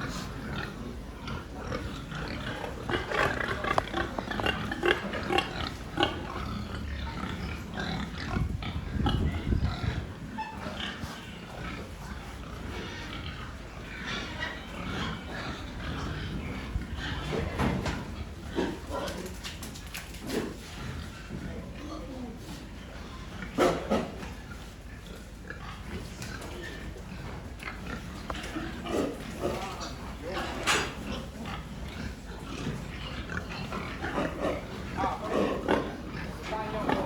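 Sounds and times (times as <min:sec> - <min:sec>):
pigs grunting and squealing: 0:00.0 - 0:19.6, 0:20.2 - 0:37.0.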